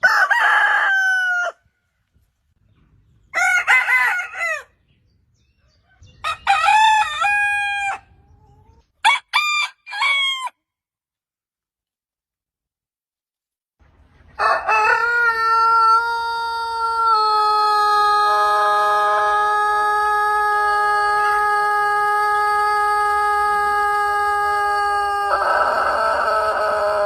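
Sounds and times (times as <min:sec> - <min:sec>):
rooster crowing: 0:00.0 - 0:01.6, 0:03.3 - 0:04.8, 0:05.9 - 0:08.2, 0:09.0 - 0:10.6, 0:14.4 - 0:27.0.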